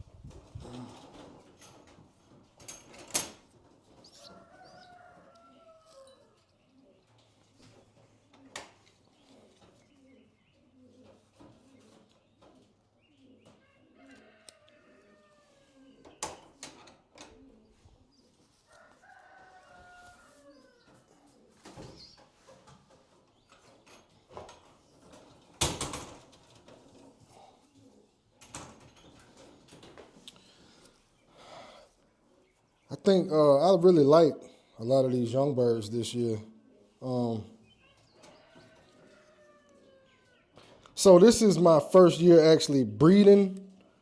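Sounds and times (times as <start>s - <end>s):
pigeons cooing: 0.0s - 2.5s, 3.2s - 42.8s
rooster crowing: 4.2s - 6.3s, 18.7s - 20.8s.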